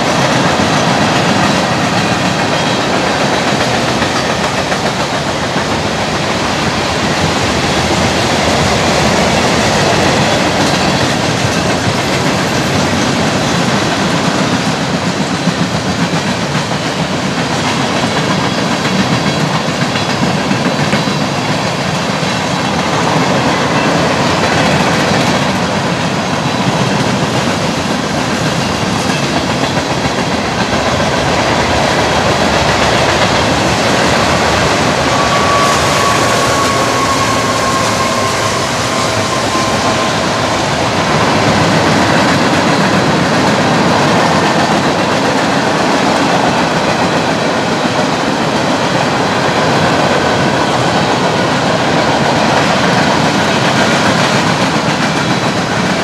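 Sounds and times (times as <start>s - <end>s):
steel wheels rolling on rail: 0.0s - 56.0s
faint thin squeal: 33.8s - 42.0s.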